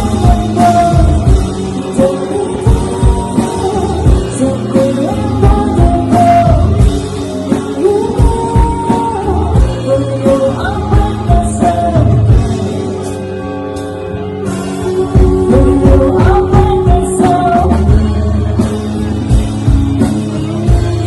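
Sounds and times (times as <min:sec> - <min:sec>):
male singer: 0:00.0 - 0:12.7, 0:14.8 - 0:18.3
steady kick-drum beat: 0:00.0 - 0:13.1, 0:14.6 - 0:21.0
live rock band playing: 0:00.0 - 0:21.0.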